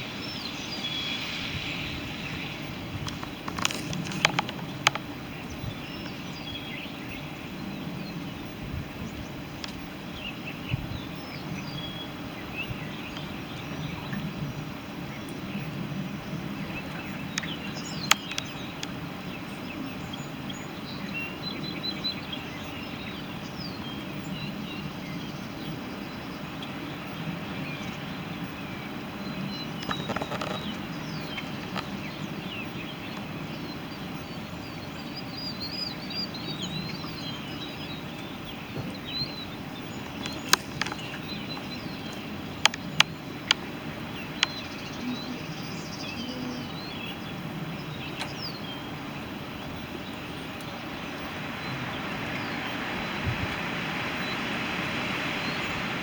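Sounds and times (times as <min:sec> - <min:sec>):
small birds chirping: 0:00.0 - 0:56.0
sharp clicks: 0:03.0 - 0:05.1, 0:40.0 - 0:43.6.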